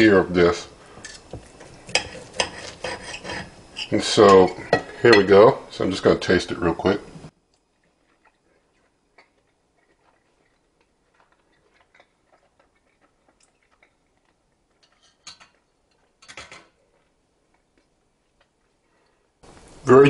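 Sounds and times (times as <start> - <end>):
mouth clicks and chewing: 7.5 - 16.2.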